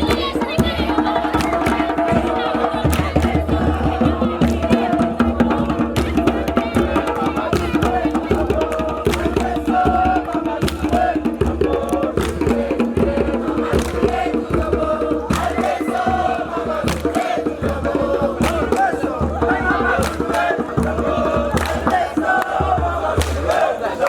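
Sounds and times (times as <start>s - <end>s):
group of voices chanting: 0.0s - 24.0s
sharp percussive beats: 0.0s - 24.0s.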